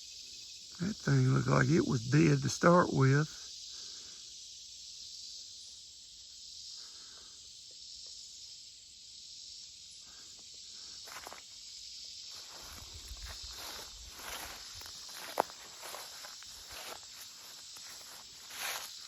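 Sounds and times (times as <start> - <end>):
crickets chirping: 0.0 - 19.0
footsteps rustling through grass: 11.1 - 11.5, 12.2 - 19.0.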